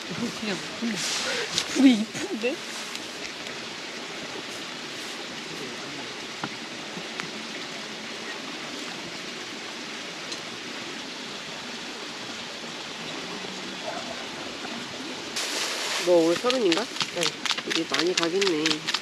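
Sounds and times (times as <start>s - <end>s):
campfire crackles: 0.0s - 19.0s
fire rushing hiss: 0.2s - 3.4s, 15.4s - 16.4s.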